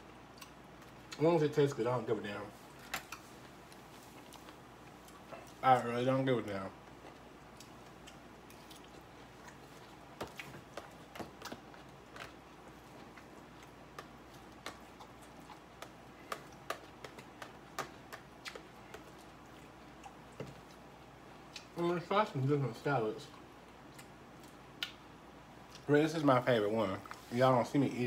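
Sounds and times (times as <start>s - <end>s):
faint room noise: 0.0s - 28.0s
person chewing salad: 0.1s - 1.2s, 2.6s - 5.6s, 6.8s - 21.8s, 23.3s - 25.9s.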